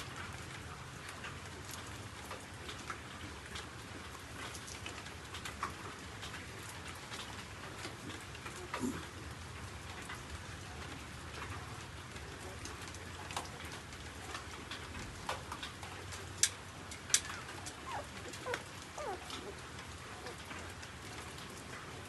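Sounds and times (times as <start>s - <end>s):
puppies suckling wet clicks: 12.6s - 21.6s
faint puppy squeaks: 17.7s - 19.6s.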